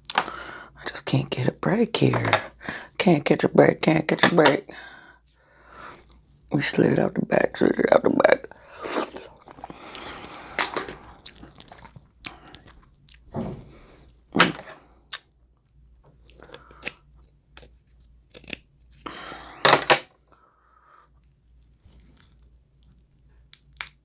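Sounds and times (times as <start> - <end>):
chewing crab legs: 9.0 - 13.3
crab shell cracking: 16.3 - 18.7, 23.5 - 24.0.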